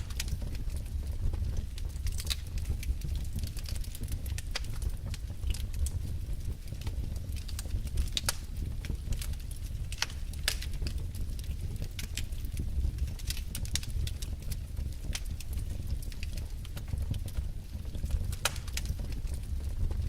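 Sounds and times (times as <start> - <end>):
burning logs popping and crackling: 0.0 - 20.0
wood fire rumbling: 0.0 - 20.0.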